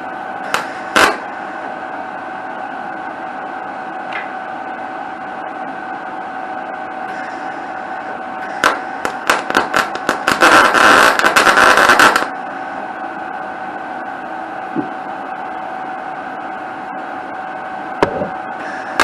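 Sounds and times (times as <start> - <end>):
welding machine hum: 0.0 - 19.0
welding arc crackling: 0.5 - 1.3, 8.5 - 12.3, 18.7 - 19.0.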